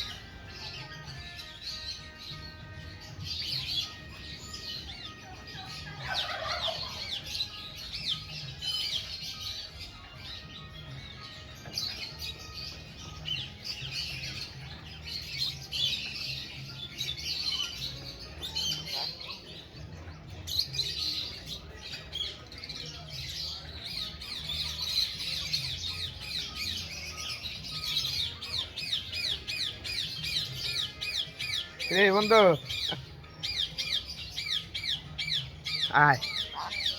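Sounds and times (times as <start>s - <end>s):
parrot chirping and chattering: 23.8s - 36.9s.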